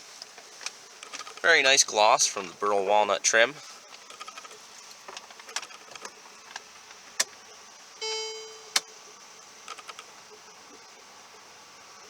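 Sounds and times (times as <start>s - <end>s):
short pitched chime: 8.0s - 8.8s.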